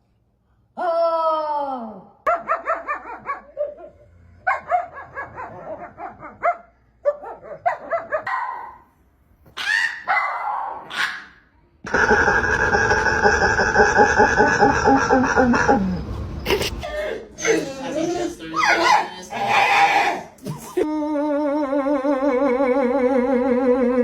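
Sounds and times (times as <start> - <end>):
dog barking: 2.3 - 8.8, 9.6 - 11.4
steady loud noise: 11.9 - 16.8.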